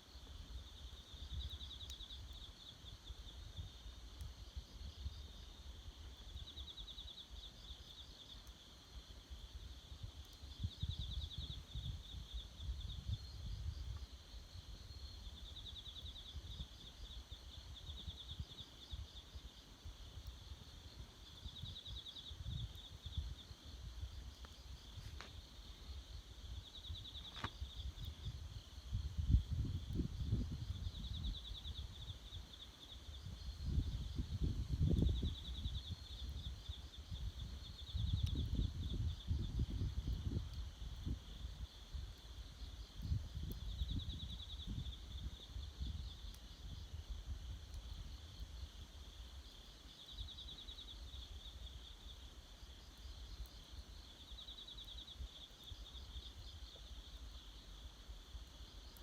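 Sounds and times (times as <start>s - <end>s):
insects trilling: 0.0s - 59.0s
campfire pops: 24.2s - 25.5s, 27.0s - 28.4s.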